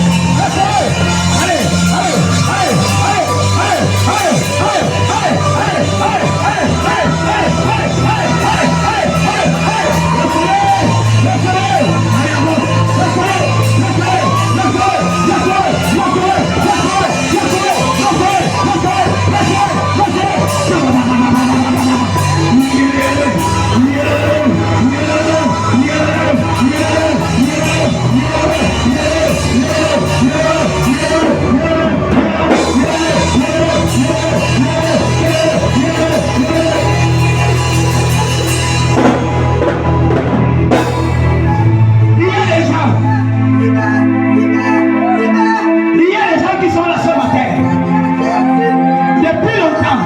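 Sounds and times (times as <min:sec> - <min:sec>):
drum kit: 0:00.0 - 0:43.2
bass line: 0:00.0 - 0:50.0
live worship music: 0:00.0 - 0:50.0
voices singing and shouting: 0:00.0 - 0:50.0
drum or cymbal strikes: 0:32.5 - 0:41.8.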